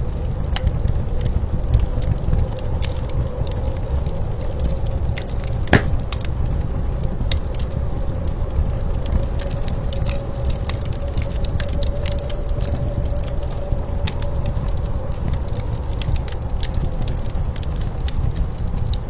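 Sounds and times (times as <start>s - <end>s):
wood fire crackling: 5.7s - 6.2s.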